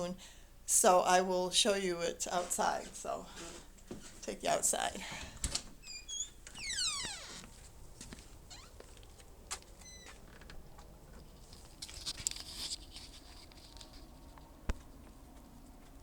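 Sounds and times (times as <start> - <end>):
light clicks and rustling: 7.4 - 16.0.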